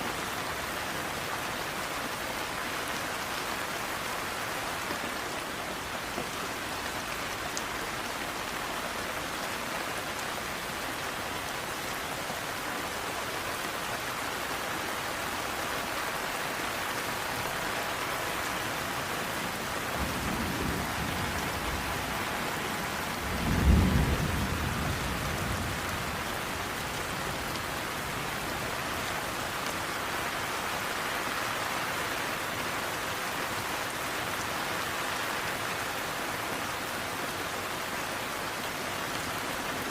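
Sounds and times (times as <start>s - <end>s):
steady rain: 0.0s - 39.9s
thunder rumbling: 23.0s - 25.9s.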